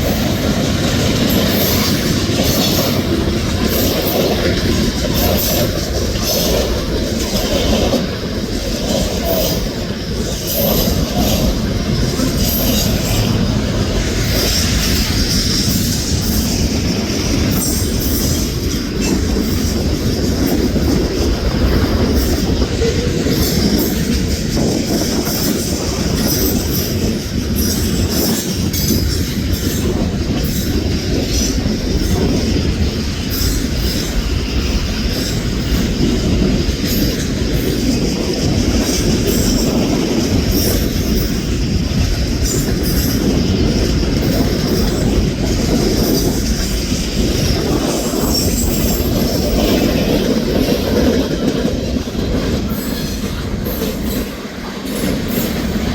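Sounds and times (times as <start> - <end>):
clacking over rail joints: 0.0 - 55.9
train wheels rumbling on rail: 0.0 - 55.9
high wheel squeal: 42.4 - 50.8.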